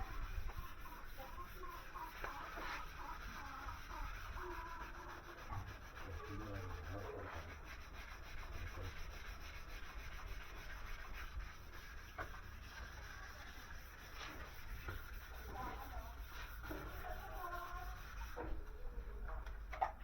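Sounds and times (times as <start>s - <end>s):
rubbing and scraping on steel: 0.0s - 18.8s.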